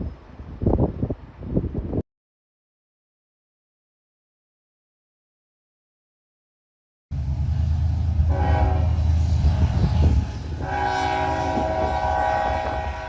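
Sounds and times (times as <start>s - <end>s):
heavy low rumble: 7.1s - 12.1s
locomotive air horn blasts: 8.2s - 13.0s.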